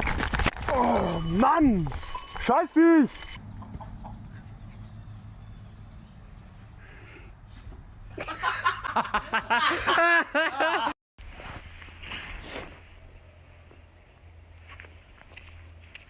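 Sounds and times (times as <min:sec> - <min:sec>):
background noise: 0:00.0 - 0:16.0
person laughing hard: 0:08.2 - 0:10.9.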